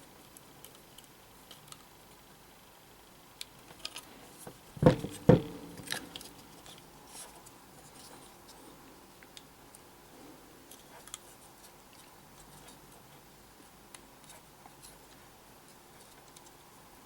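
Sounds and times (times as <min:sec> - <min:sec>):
sharp knocks: 0:04.8 - 0:06.4.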